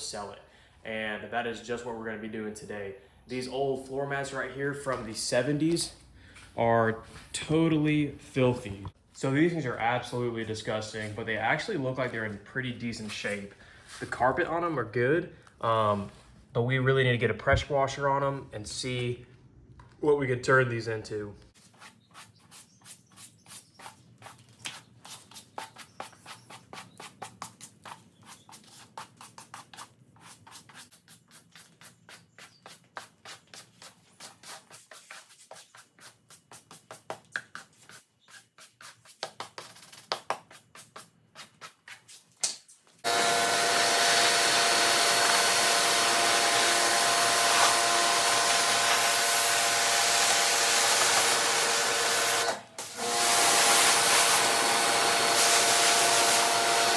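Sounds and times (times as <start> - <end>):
pressure washer spraying: 43.1 - 56.9.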